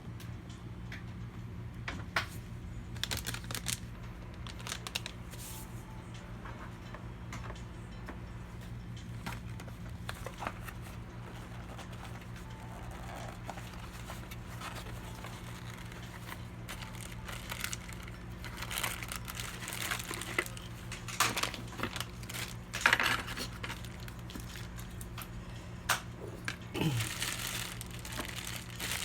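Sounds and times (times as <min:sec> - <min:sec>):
steady low hum: 0:00.0 - 0:29.0
crinkling and rustling: 0:03.0 - 0:05.8, 0:08.6 - 0:25.3, 0:26.4 - 0:29.0.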